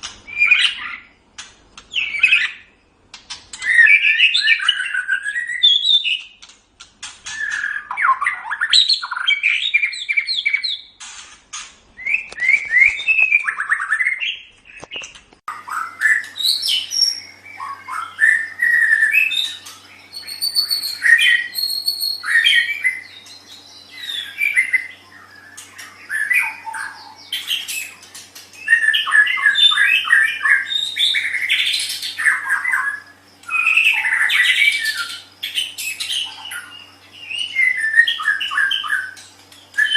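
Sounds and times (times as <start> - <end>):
faint steady hum: 0.0 - 39.9
songbird singing trills and whistles: 0.3 - 1.2, 1.8 - 6.4, 7.2 - 11.0, 12.0 - 39.9.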